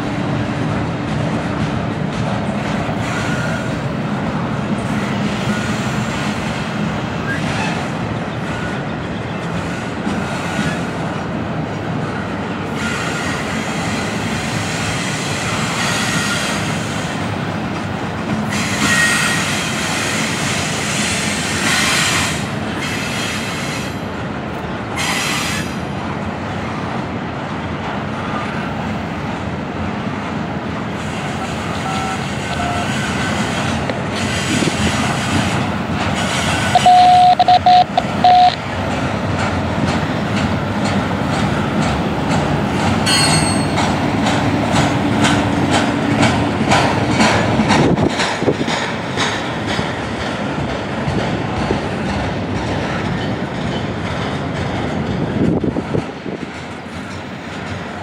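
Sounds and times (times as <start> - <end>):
steel wheels rumbling on rail: 0.0 - 58.0
high-pitched bursts: 36.7 - 38.6.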